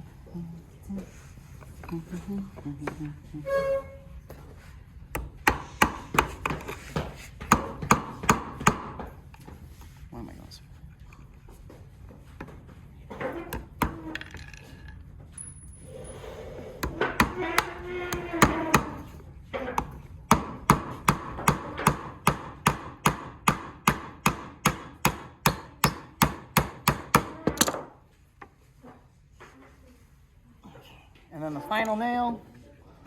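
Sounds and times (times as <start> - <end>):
hammer striking nail into wood: 5.2 - 9.1, 16.8 - 19.1, 19.8 - 27.8.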